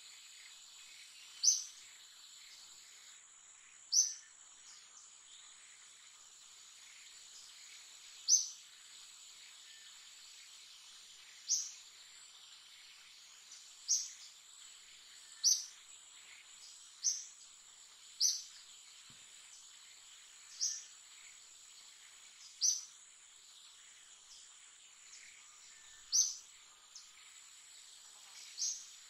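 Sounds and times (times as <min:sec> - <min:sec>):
bird chirping: 0:00.0 - 0:29.0.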